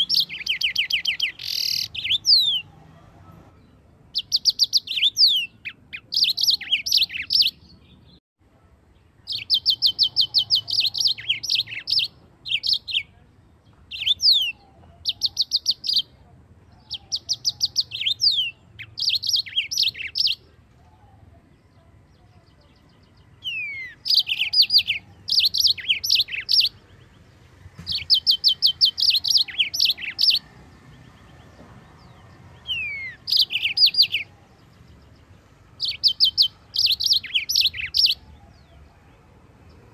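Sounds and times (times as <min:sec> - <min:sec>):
bird singing trills and whistles: 0:00.0 - 0:02.7, 0:04.1 - 0:08.1, 0:09.3 - 0:13.1, 0:13.9 - 0:16.1, 0:16.8 - 0:21.3, 0:22.6 - 0:26.8, 0:27.9 - 0:30.5, 0:32.0 - 0:35.2, 0:35.8 - 0:38.8.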